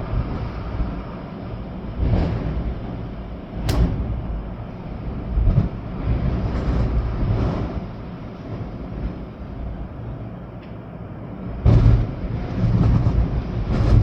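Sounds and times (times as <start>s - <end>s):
sharp tap: 3.7s - 4.3s.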